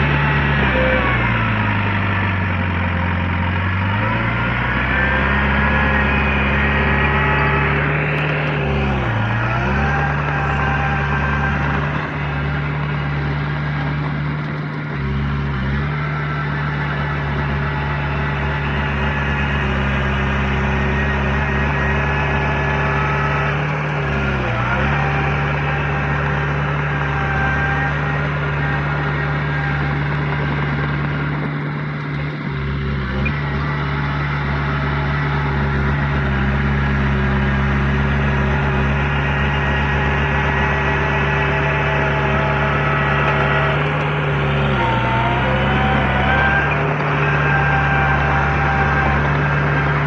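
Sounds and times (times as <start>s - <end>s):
heavy machine diesel engine: 0.0s - 50.0s.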